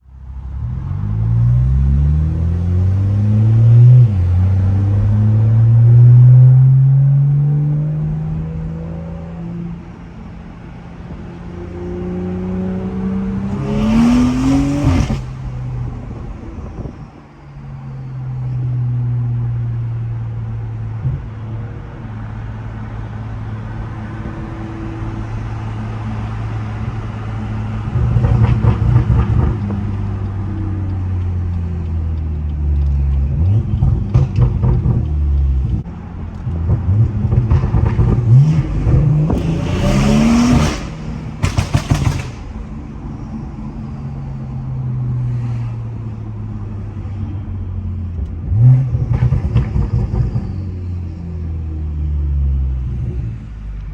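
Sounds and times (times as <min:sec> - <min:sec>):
car engine revving: 0:11.2 - 0:17.1, 0:18.9 - 0:53.9
exhaust crackling: 0:23.2 - 0:50.9.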